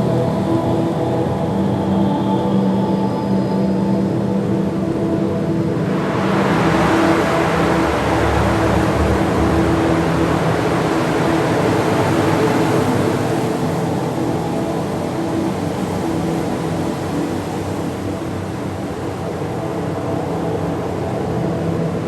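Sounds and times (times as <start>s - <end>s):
wind machine rush of air: 5.6s - 21.1s.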